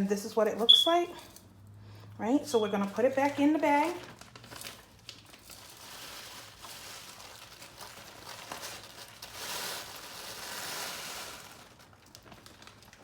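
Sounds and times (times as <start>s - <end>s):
plastic bag crinkling: 2.4s - 13.0s
crushed chips poured into bag: 3.8s - 13.0s.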